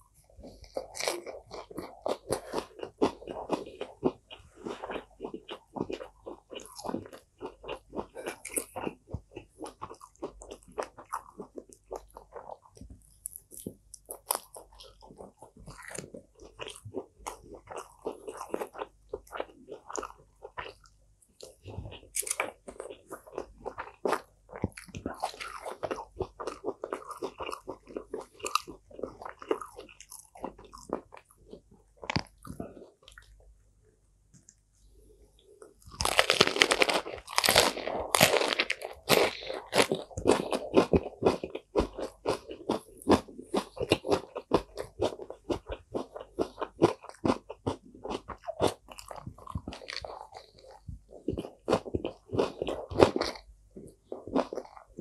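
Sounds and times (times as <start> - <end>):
chewing food: 0.1 - 33.6, 35.3 - 55.0
crisp crunching of lettuce: 35.9 - 53.5.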